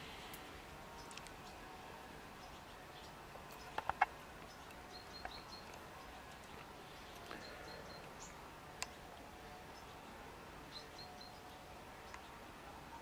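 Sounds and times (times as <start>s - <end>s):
small bird chirping: 2.4s - 9.0s.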